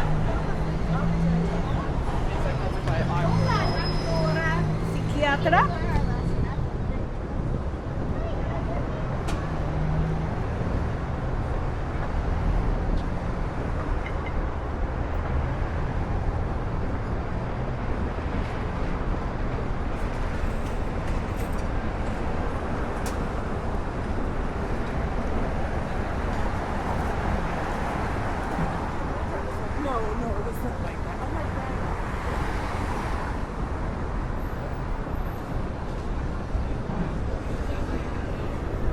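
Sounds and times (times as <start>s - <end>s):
passing cars: 0.0s - 38.9s.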